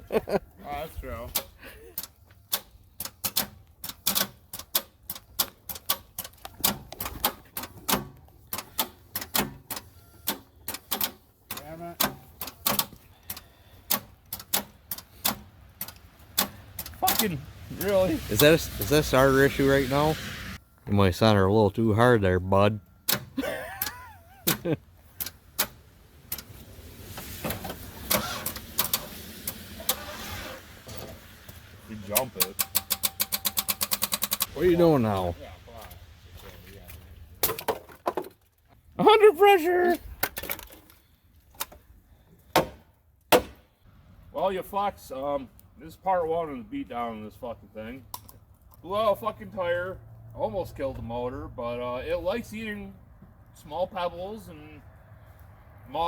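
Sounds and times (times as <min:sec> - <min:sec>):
starter motor cranking engine: 0:28.0 - 0:30.7, 0:32.1 - 0:34.5
car starter clicking: 0:32.2 - 0:34.5.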